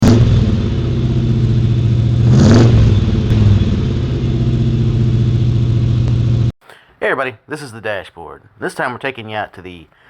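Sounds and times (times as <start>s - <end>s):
car engine idling and revving: 0.0s - 6.5s.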